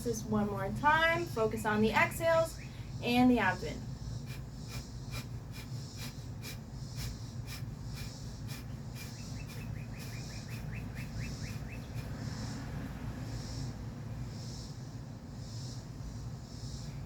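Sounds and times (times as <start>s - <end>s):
bird chirping: 2.1s - 14.7s
forceful nasal exhales: 4.1s - 10.8s.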